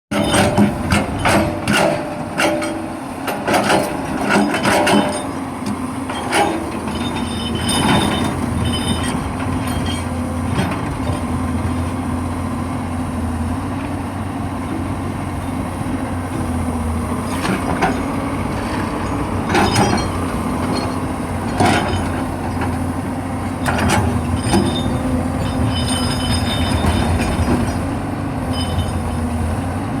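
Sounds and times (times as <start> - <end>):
machine knocks and clanks: 0.1 - 11.3
excavator diesel engine running: 0.1 - 30.0.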